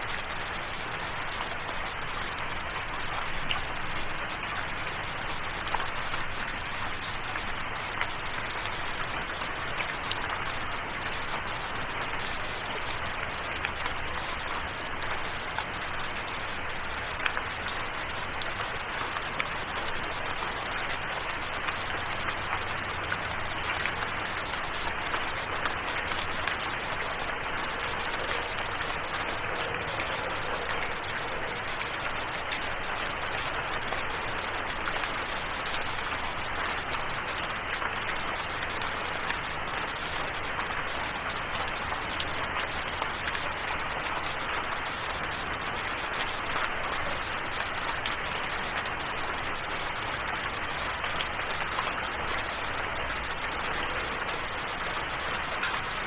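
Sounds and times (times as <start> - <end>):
raindrops ticking: 0.0 - 56.0
steady rain hiss: 0.0 - 56.0.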